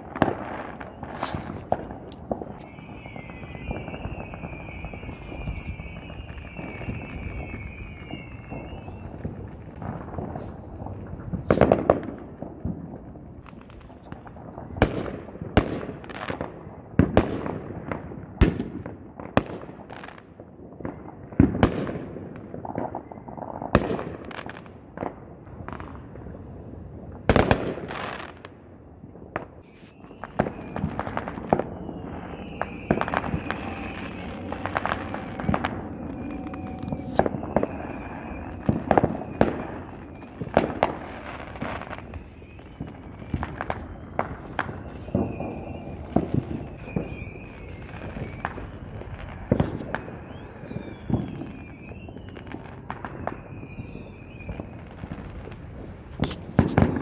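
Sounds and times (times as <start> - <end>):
fireworks bangs and booms: 0.0 - 57.0
faint wavering high tone: 29.8 - 40.5.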